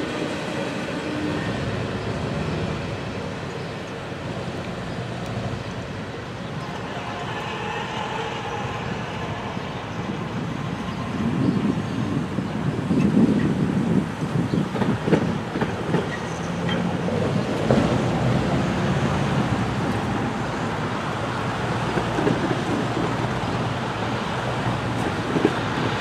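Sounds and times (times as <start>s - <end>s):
cars driving across tracks: 0.0s - 26.0s
freight train rumbling: 0.0s - 26.0s.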